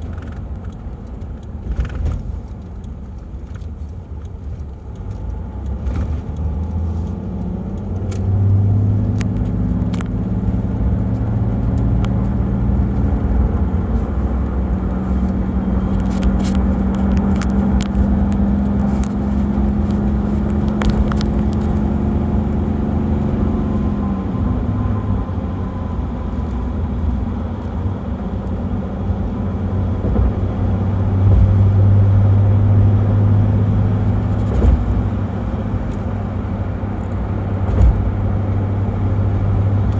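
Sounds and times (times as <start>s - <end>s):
light clicks and rattles: 0.0s - 23.3s
diesel engine drone: 0.0s - 39.9s.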